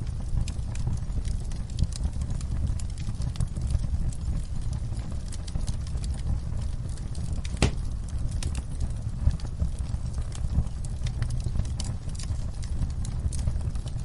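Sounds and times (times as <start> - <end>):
fire crackling and snapping: 0.0 - 14.0
wood fire rumbling: 0.0 - 14.0
loud pop from fire: 7.4 - 8.5.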